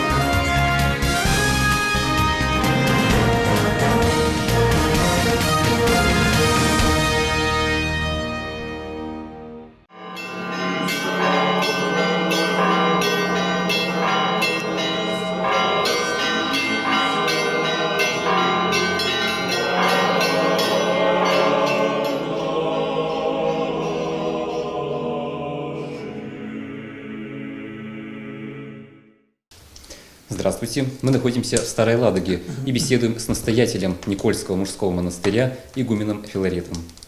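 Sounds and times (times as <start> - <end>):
church bells pealing: 1.9 - 7.8, 9.9 - 25.2
large bell low hum: 10.0 - 22.4.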